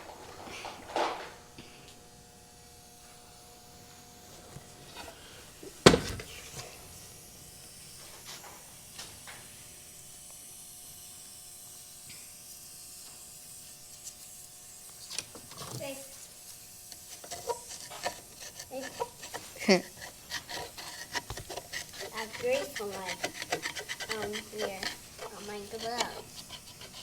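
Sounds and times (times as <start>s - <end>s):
hand tools clicking and clinking: 17.1s - 27.0s.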